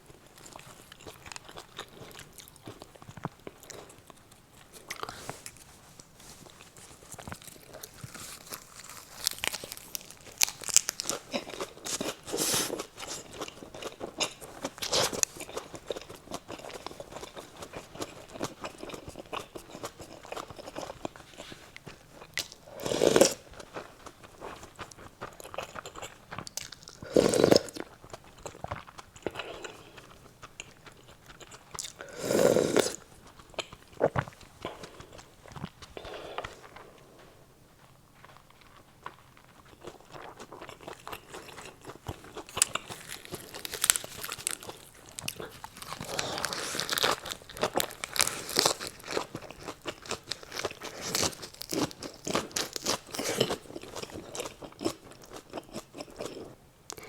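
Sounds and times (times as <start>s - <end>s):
chewing and crunching: 0.0s - 57.0s
loud mouth sounds: 32.0s - 33.0s.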